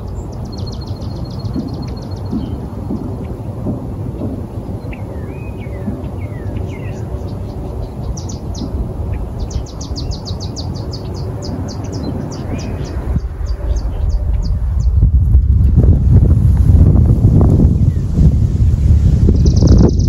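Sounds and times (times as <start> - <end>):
birds whistling: 0.0 - 3.5, 4.2 - 15.0, 19.0 - 20.0
steady low rumble: 0.0 - 20.0.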